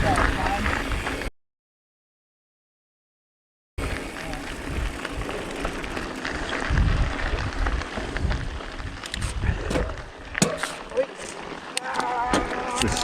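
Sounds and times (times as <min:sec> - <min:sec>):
bike riding on dirt trail: 0:00.0 - 0:01.3, 0:03.8 - 0:13.0
wind noise: 0:00.0 - 0:01.3, 0:03.8 - 0:10.4.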